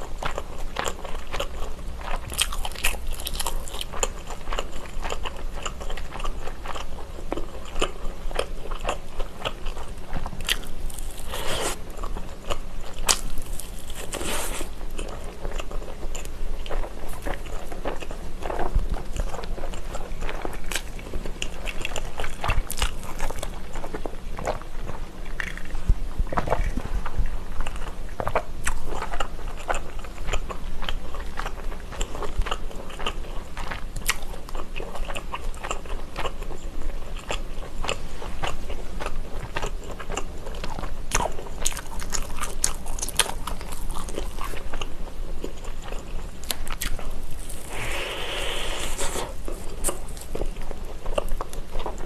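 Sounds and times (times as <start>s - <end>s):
woman biting and chewing: 0.2s - 24.6s, 37.2s - 52.0s.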